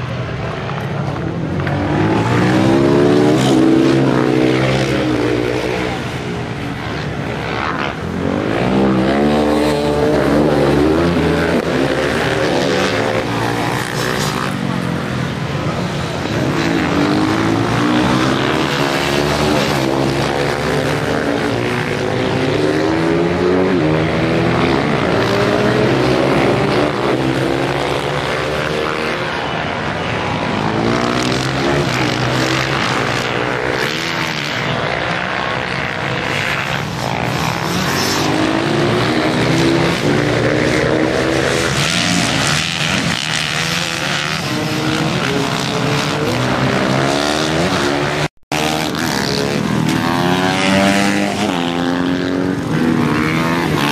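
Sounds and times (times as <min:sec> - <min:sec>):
racing motorcycle engines revving: 0:00.0 - 0:53.9.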